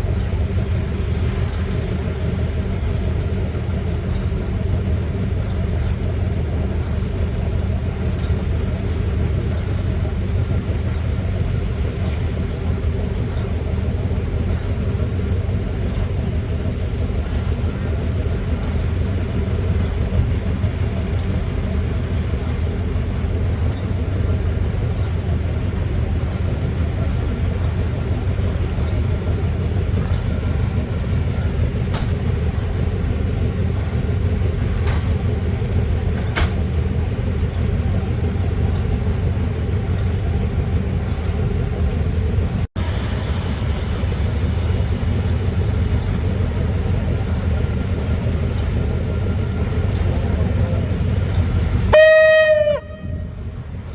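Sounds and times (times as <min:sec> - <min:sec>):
locomotive engine humming: 0:00.0 - 0:53.9
light ticks: 0:00.1 - 0:03.3, 0:04.0 - 0:06.0, 0:06.7 - 0:07.2, 0:07.8 - 0:17.6, 0:18.2 - 0:33.0, 0:37.4 - 0:37.8, 0:38.6 - 0:40.4, 0:44.5 - 0:51.8.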